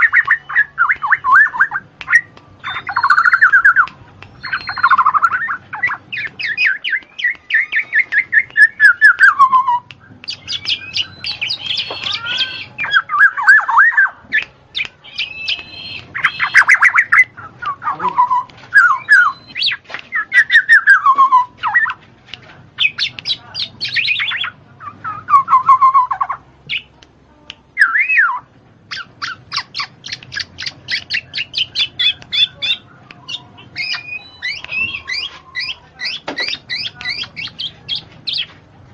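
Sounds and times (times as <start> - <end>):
bird whistling and chattering: 0.0 - 22.0, 22.8 - 26.9, 27.8 - 38.6.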